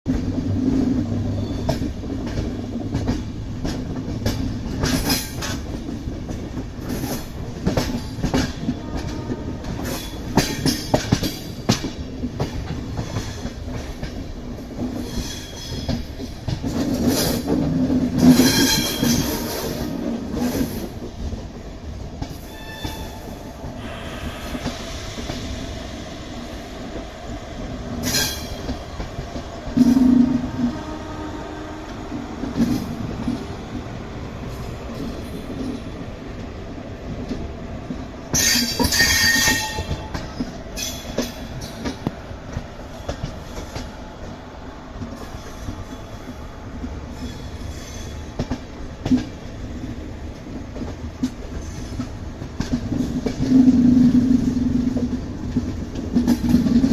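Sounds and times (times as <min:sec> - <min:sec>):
train rumbling on track: 0:00.0 - 0:56.9
wheels clicking over rail joints: 0:00.1 - 0:23.3, 0:45.0 - 0:56.9.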